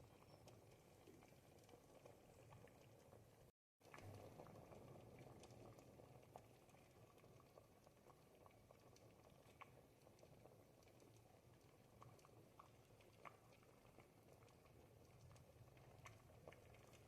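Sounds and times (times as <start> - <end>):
soup bubbling in a pot: 0.0 - 17.0.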